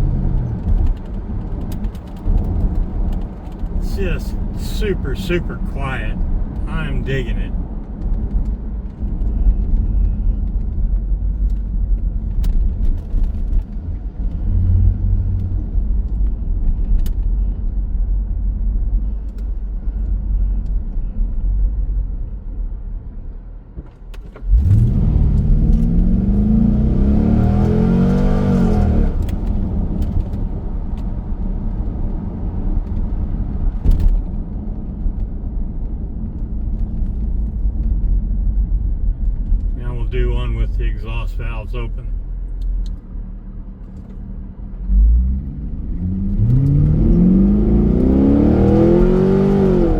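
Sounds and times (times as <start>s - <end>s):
road noise: 0.0s - 16.6s, 24.5s - 49.9s
car engine drone: 3.5s - 7.6s, 24.5s - 30.4s, 36.2s - 49.9s
engine accelerating hard: 24.5s - 29.3s, 44.9s - 49.9s.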